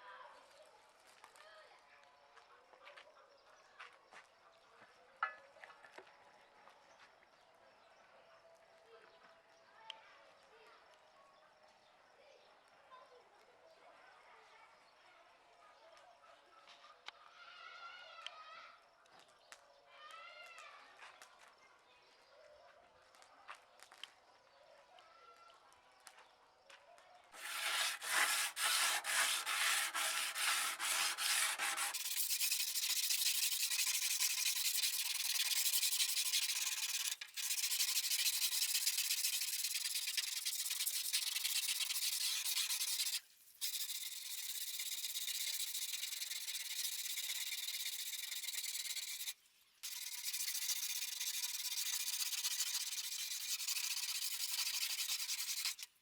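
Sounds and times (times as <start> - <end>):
sanding metal: 27.4 - 56.0.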